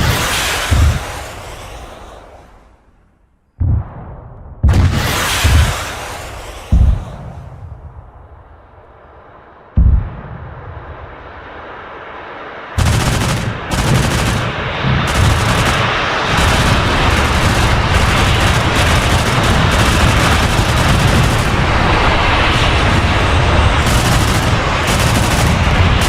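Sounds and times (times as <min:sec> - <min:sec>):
rapid gunfire: 0:00.0 - 0:01.5, 0:04.6 - 0:07.2, 0:12.8 - 0:26.0
heavy boom: 0:00.0 - 0:01.8, 0:03.6 - 0:11.5.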